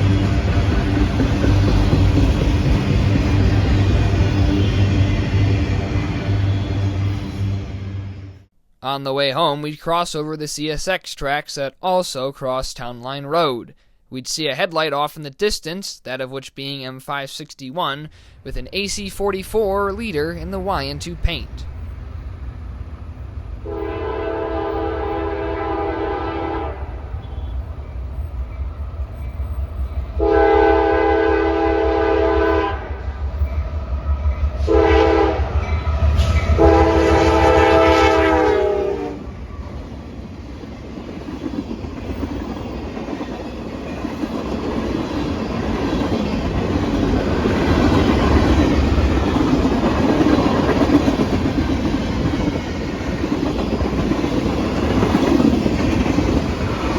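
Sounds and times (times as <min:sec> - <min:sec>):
train cars clickety-clack: 0:00.0 - 0:07.2, 0:27.2 - 0:56.9
low locomotive engine rumble: 0:00.0 - 0:08.5, 0:18.4 - 0:56.9
train horn blasts: 0:04.2 - 0:05.5, 0:06.2 - 0:08.4, 0:23.6 - 0:27.7, 0:30.2 - 0:33.1, 0:34.6 - 0:39.3.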